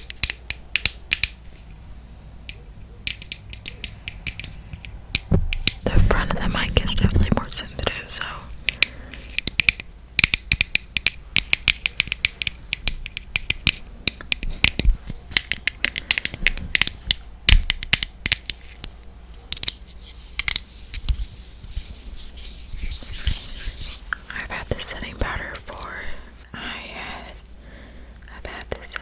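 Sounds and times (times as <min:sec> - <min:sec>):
scratching: 0:02.5 - 0:09.8, 0:18.5 - 0:26.5.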